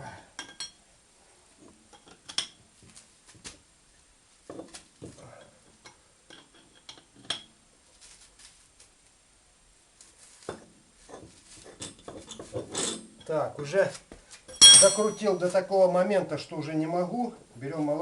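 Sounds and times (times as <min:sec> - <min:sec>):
metallic clinks of wrench: 0:14.5 - 0:15.2.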